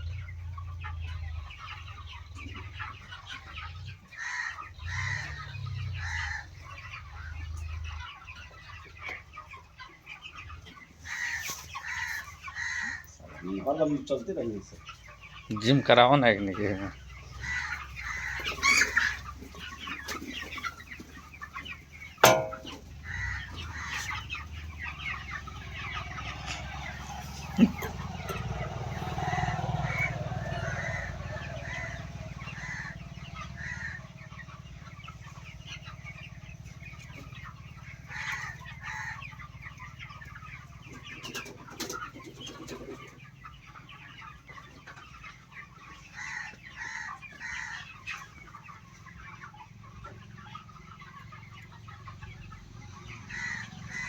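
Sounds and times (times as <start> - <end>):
chickens clucking: 0.0 - 54.0
sharp knock: 22.2 - 22.8.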